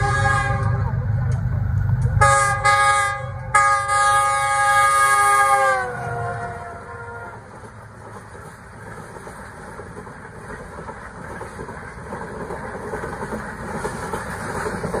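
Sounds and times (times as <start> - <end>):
train wheels clattering over rails: 7.4 - 15.0.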